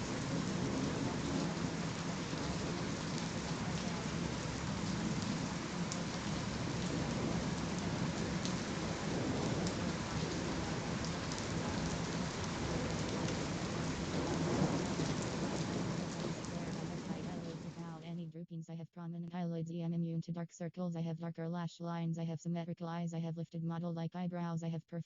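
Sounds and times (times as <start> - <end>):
steady rain falling: 0.0 - 18.0
thunder rumbling: 0.0 - 18.0
raindrops ticking: 0.0 - 18.1.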